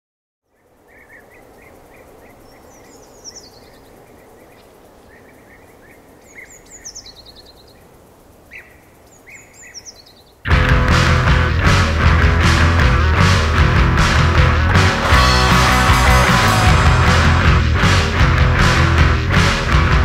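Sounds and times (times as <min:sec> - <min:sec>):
wild birds singing: 0:00.4 - 0:10.5
background hiss: 0:00.5 - 0:20.0
loud rock music: 0:10.5 - 0:20.0.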